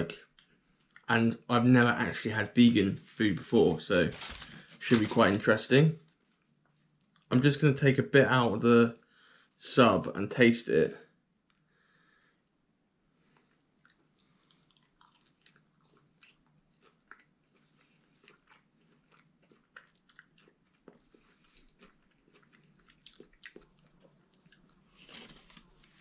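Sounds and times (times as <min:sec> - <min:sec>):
person chewing: 0:13.4 - 0:26.0.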